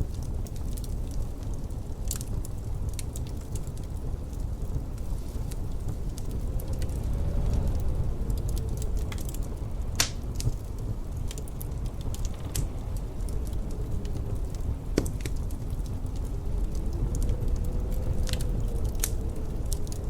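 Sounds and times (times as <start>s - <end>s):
low rumble of wind: 0.0s - 20.0s
wood fire crackling: 0.0s - 20.0s
sharp pops of fire: 8.5s - 14.2s, 14.9s - 15.8s.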